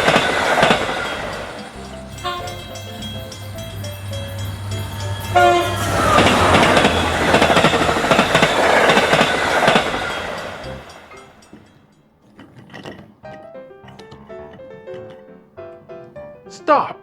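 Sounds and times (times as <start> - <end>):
toy train horn toot: 0.0 - 9.0
train clattering: 0.0 - 13.5.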